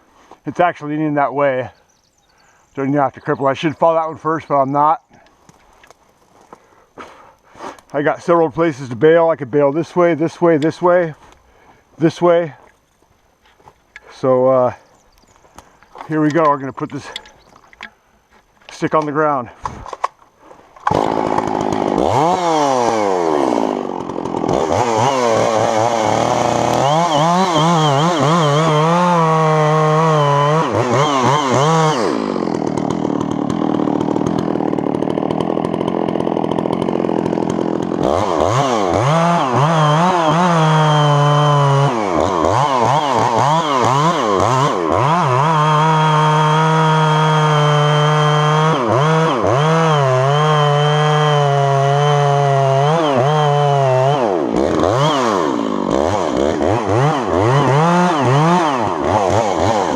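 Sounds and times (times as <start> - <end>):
chainsaw cutting wood: 13.6 - 59.9.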